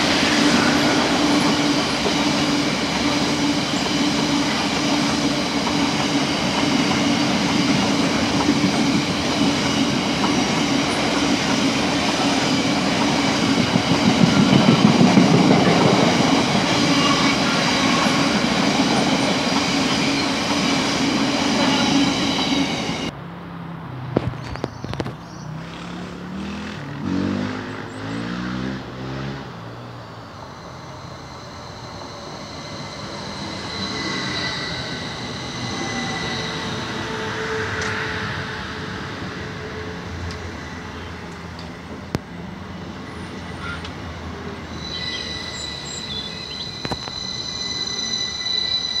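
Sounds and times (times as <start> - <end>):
electric train passing: 0.0 - 23.2, 25.4 - 49.0
diesel train passing: 0.0 - 49.0
high-pitched whining tones: 30.2 - 39.2, 44.6 - 49.0.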